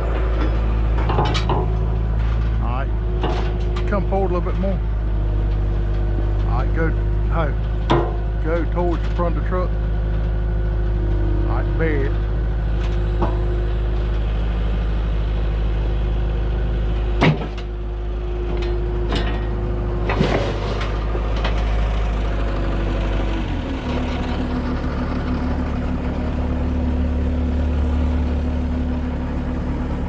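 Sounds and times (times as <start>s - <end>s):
diesel engine running: 0.0s - 30.0s
sharp metallic knocks: 7.8s - 8.5s.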